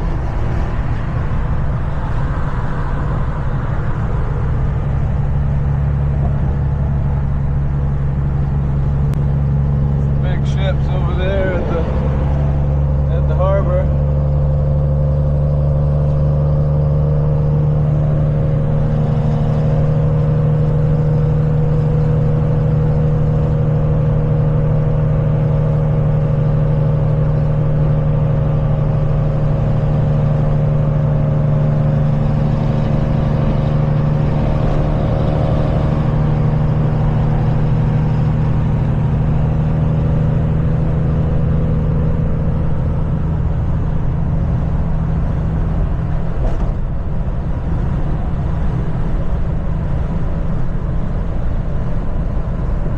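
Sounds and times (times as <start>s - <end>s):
road noise: 0.0s - 52.9s
truck diesel engine humming: 0.0s - 52.9s.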